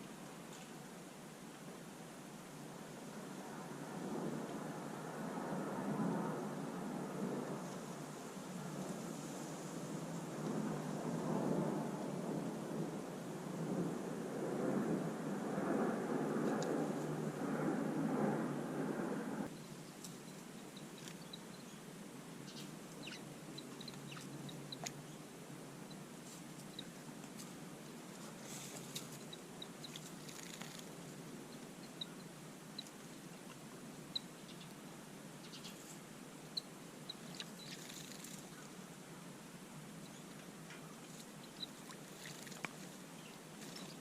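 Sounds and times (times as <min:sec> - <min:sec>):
small birds chirping: 0:19.5 - 0:27.5, 0:28.1 - 0:34.8, 0:35.4 - 0:38.8, 0:40.0 - 0:44.0.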